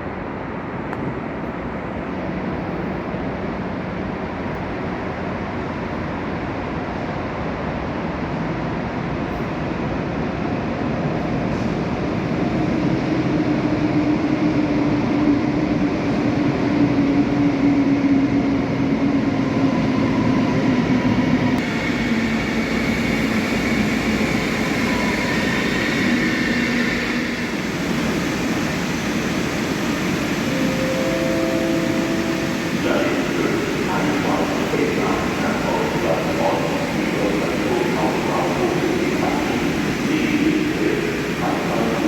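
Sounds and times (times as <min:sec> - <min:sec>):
train rumble: 0:00.0 - 0:42.0
higher whine: 0:26.7 - 0:42.0
train whine dropping in pitch: 0:28.5 - 0:42.0.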